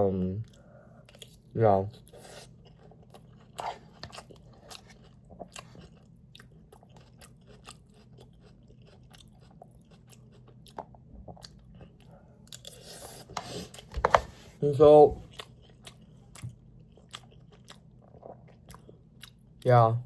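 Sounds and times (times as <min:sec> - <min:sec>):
person chewing food: 0:00.4 - 0:14.6, 0:15.2 - 0:19.6.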